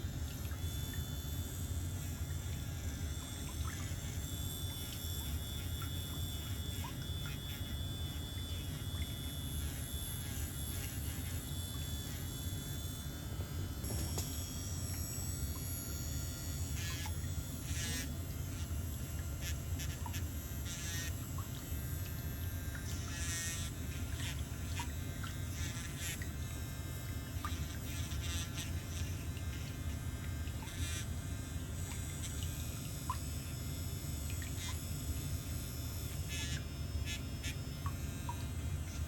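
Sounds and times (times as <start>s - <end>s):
electric nail drill buzzing: 0.0s - 39.0s
drill bit grinding toenail: 3.8s - 12.4s, 16.7s - 18.7s, 19.4s - 21.1s, 22.8s - 24.8s, 25.4s - 26.3s, 27.6s - 29.8s.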